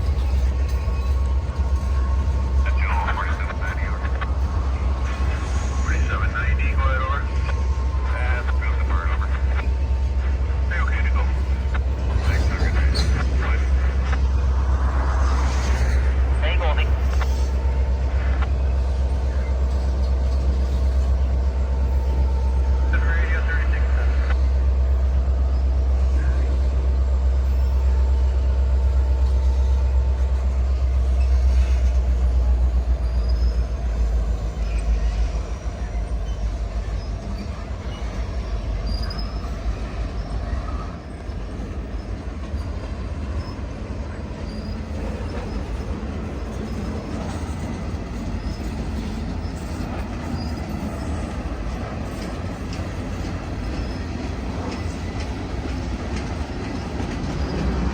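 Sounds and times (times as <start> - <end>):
train wheels rumbling on rails: 0.0 - 57.9
faint wheel squeal: 33.0 - 40.9, 44.4 - 51.4.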